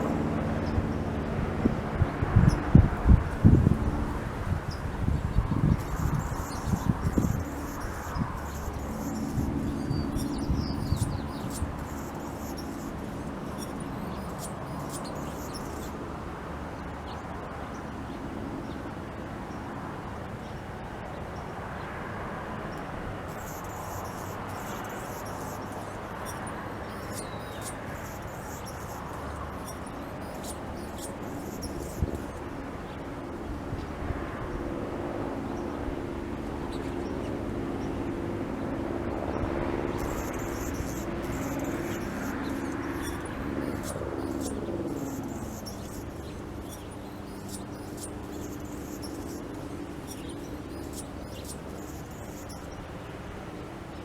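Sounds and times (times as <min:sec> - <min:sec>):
steady low hum: 0:00.0 - 0:17.0
small birds chirping: 0:03.4 - 0:16.1, 0:23.3 - 0:33.0, 0:36.6 - 0:38.1, 0:39.1 - 0:53.2.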